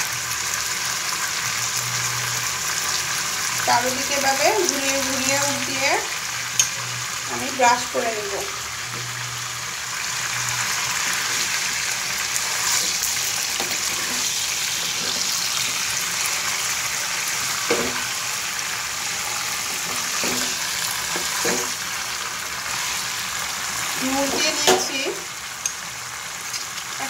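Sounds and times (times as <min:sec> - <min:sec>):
chicken sizzling in hot oil: 0:00.0 - 0:27.0.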